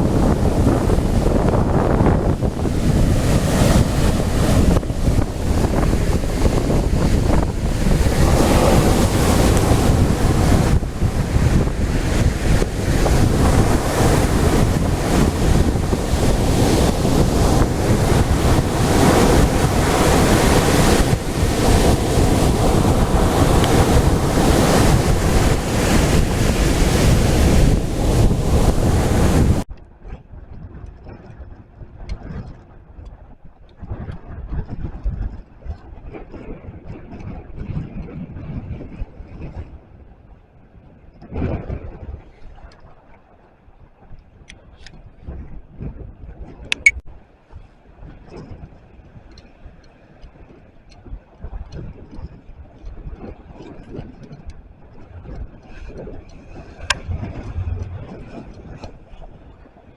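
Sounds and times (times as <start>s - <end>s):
waves breaking on shore: 0.0s - 29.7s, 55.2s - 59.9s
wind buffeting microphone: 0.0s - 42.7s, 50.4s - 59.9s.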